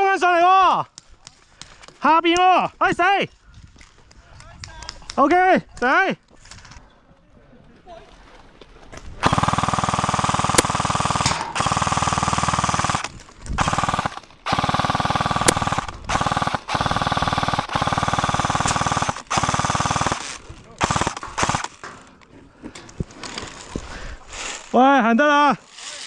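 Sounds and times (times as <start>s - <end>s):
airsoft gun full-auto bursts: 9.2s - 22.0s.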